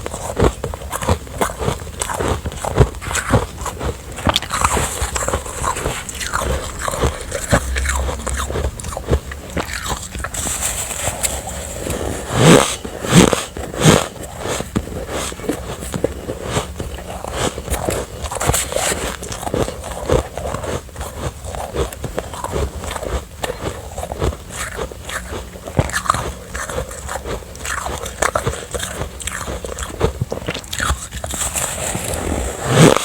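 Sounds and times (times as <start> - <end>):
chewing crunchy ice: 0.0 - 33.0.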